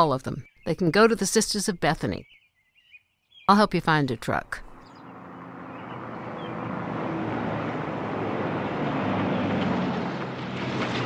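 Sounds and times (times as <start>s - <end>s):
road noise: 4.2s - 11.0s
vehicle engine hum: 4.4s - 11.0s.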